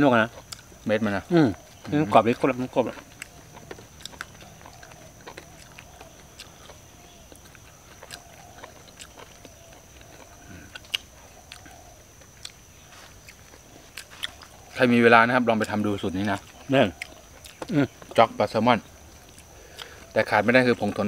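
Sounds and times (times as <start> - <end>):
people chewing: 0.0 - 21.0.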